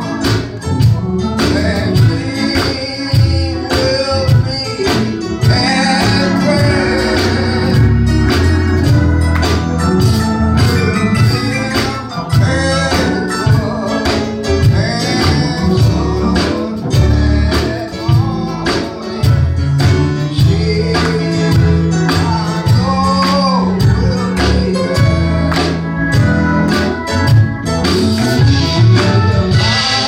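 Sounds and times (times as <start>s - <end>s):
gospel band music: 0.0s - 30.0s
steady drum beat: 0.0s - 30.0s
walking bass line: 0.0s - 30.0s
person singing: 1.4s - 8.4s, 10.7s - 26.3s.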